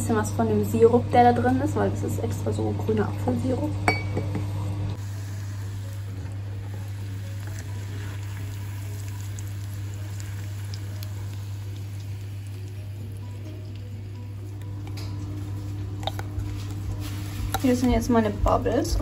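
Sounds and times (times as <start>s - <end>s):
low steady hum: 0.0s - 19.0s
oil sizzling and bubbling: 4.9s - 19.0s.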